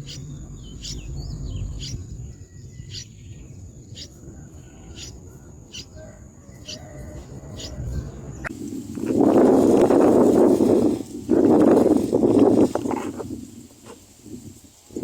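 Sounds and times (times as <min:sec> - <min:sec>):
bird chicks cheeping: 0:00.0 - 0:08.5
high insect trill: 0:00.0 - 0:15.0.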